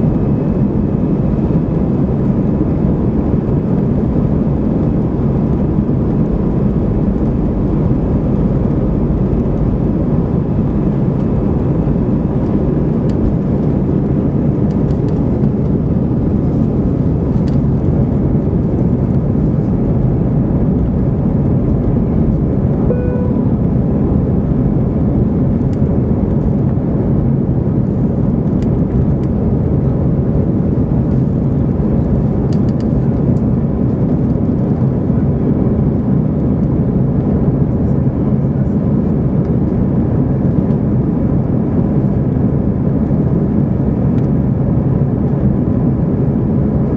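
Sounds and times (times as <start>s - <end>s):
aircraft cabin engine noise: 0.0s - 46.9s
chime tone: 22.9s - 23.6s.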